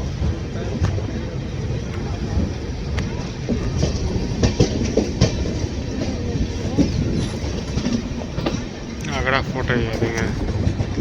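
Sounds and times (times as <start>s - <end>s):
train wheels rumbling on rail: 0.0s - 11.0s
wheels clacking over rail joints: 0.0s - 11.0s.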